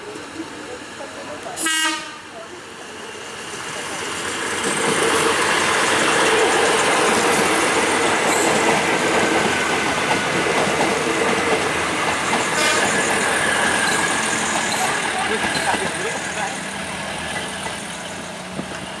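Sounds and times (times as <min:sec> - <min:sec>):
train wheels rumbling and clattering: 0:02.9 - 0:19.0.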